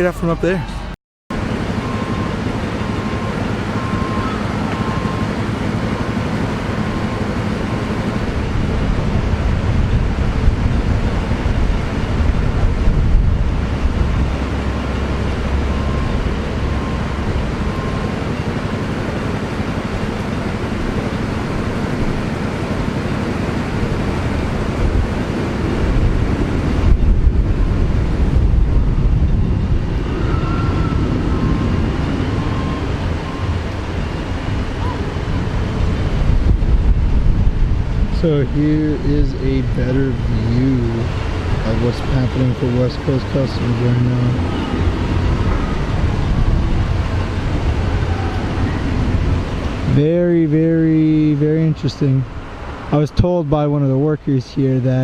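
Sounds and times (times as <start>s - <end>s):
wind buffeting microphone: 0.0s - 53.3s
faint beeping: 13.9s - 18.9s, 29.2s - 35.3s.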